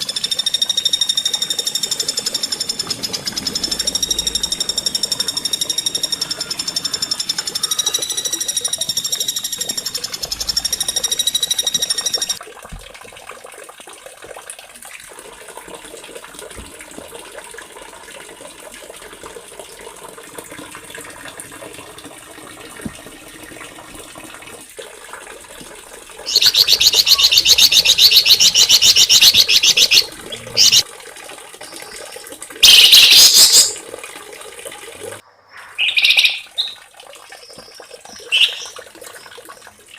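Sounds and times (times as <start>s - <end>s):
rapid high bird trill: 0.0s - 12.4s, 26.3s - 30.8s, 32.6s - 33.8s, 35.5s - 36.8s, 38.2s - 38.8s
small songbirds singing: 26.3s - 30.8s, 32.6s - 33.8s, 35.7s - 39.3s.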